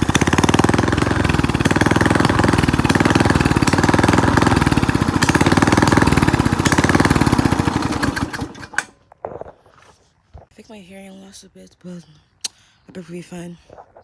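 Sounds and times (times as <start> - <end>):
engine without exhaust firing: 0.0 - 9.0.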